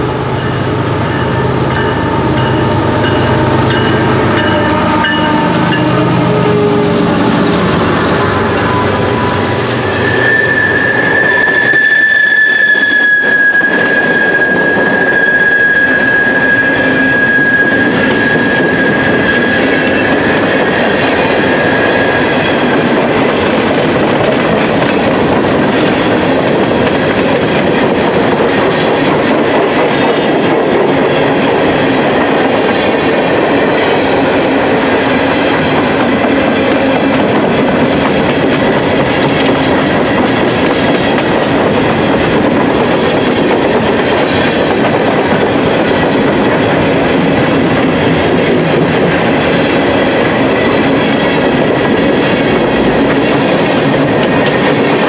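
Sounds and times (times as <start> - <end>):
train wheels clattering on rail: 0.0 - 55.0
high wheel squeal: 1.2 - 22.3.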